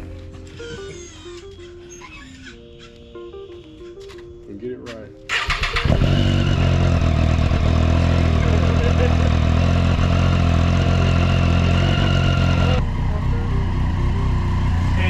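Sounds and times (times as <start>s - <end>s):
motorcycle engine starting and idling: 5.3s - 15.0s.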